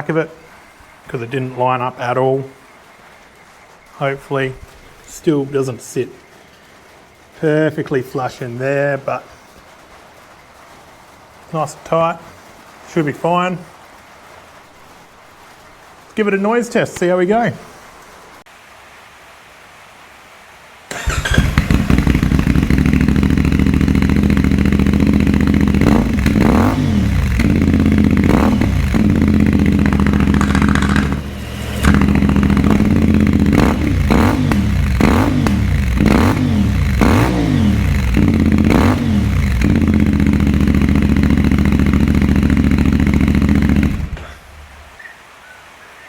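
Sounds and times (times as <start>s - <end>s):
motorcycle engine idling and revving: 20.9s - 45.0s.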